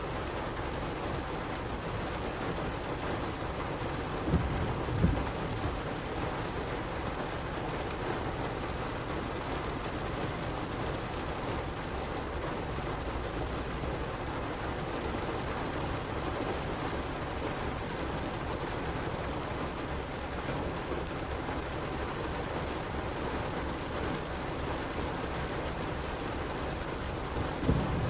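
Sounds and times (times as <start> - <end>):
heavy rain on car roof: 0.0 - 28.0
short low thumps: 4.2 - 5.6, 27.6 - 28.0.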